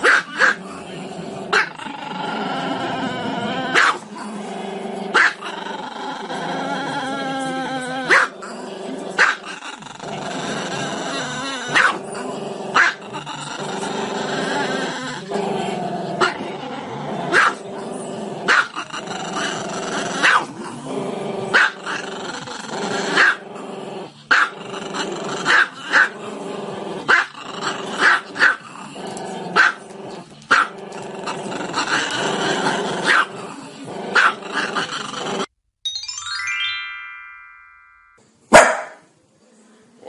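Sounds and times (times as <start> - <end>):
dog growling: 0.0 - 35.5
dog barking sharply: 38.6 - 39.0.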